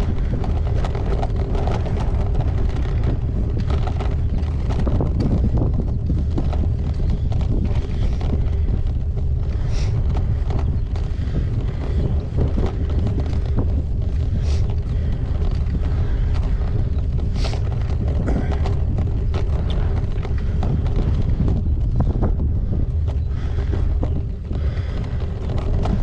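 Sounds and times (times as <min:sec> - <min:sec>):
bike rattles and clicks: 0:00.0 - 0:26.0
wind buffeting microphone: 0:00.0 - 0:26.0.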